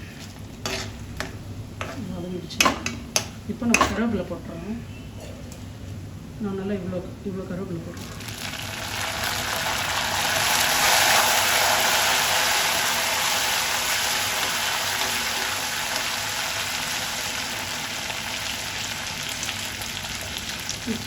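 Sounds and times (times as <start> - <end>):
leaves sizzling in hot oil: 8.0 - 21.0.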